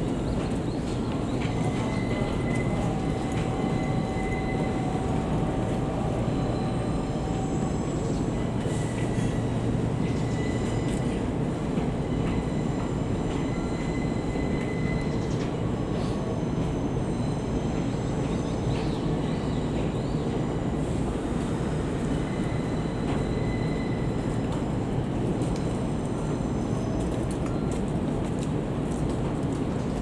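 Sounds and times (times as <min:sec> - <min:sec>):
train rumbling: 0:00.0 - 0:30.0
faint high squeals: 0:01.5 - 0:11.2, 0:12.0 - 0:20.5, 0:21.6 - 0:24.4.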